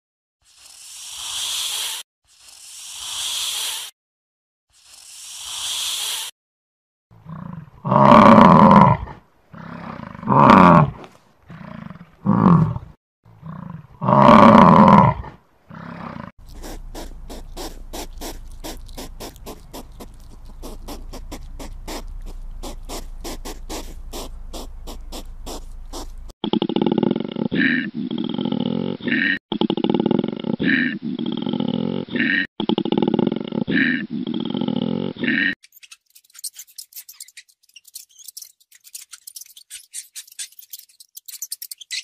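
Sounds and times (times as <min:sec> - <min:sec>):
snake hissing: 0:00.4 - 0:04.0, 0:04.7 - 0:06.3, 0:16.4 - 0:26.4
deep animal roars: 0:07.2 - 0:16.3, 0:26.4 - 0:35.6.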